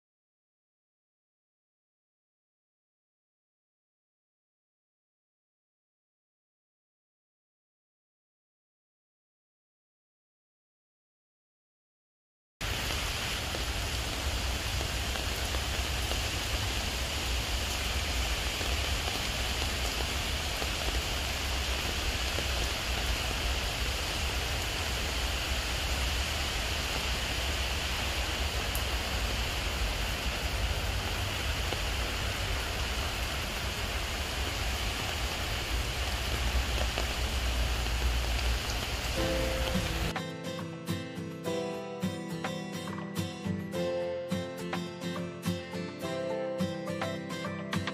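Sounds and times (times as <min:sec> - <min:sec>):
rain on pavement and foliage: 0:12.6 - 0:40.2.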